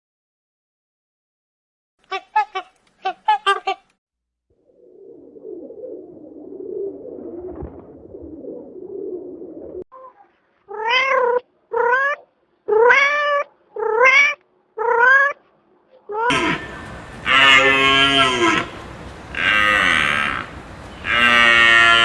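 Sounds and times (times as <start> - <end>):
cow mooing: 16.3 - 22.0
low rough rumble: 16.3 - 22.0.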